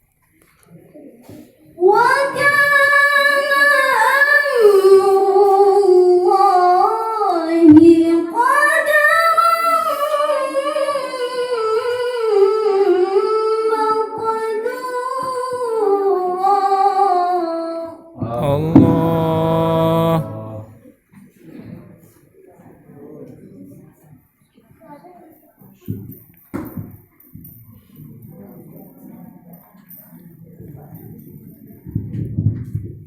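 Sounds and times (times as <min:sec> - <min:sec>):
woman reciting melodically: 0:18.2 - 0:20.8.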